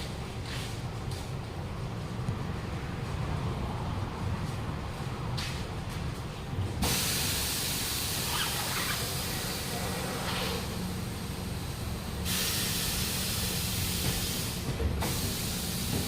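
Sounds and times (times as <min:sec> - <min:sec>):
compressed air hissing: 0:06.8 - 0:16.0.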